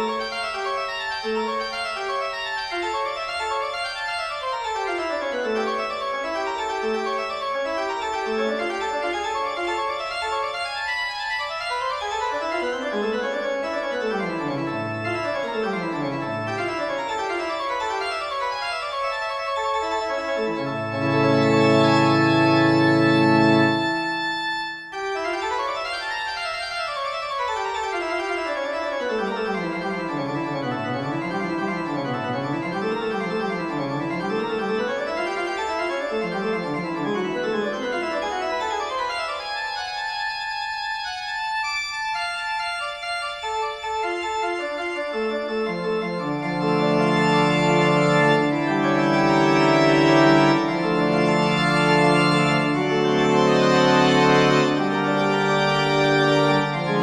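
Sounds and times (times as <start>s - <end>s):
organ music: 0.0s - 57.0s.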